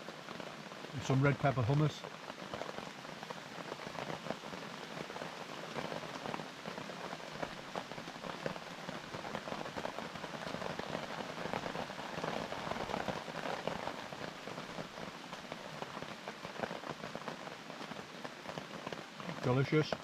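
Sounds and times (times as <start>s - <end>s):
heavy rain on a tarp: 0.0s - 20.0s.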